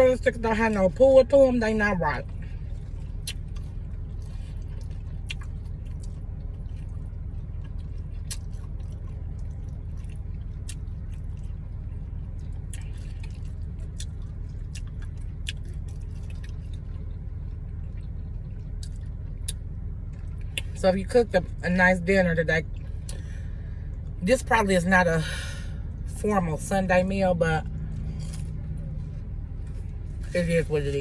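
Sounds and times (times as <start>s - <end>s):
low car cabin hum: 0.0s - 31.0s
wet eating mouth sounds: 3.0s - 19.6s.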